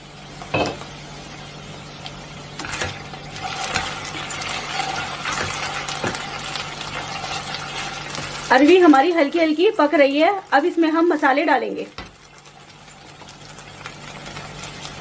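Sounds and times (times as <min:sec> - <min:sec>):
food sizzling in a pan: 0:00.0 - 0:15.0
spatula scraping a pan: 0:02.6 - 0:08.4.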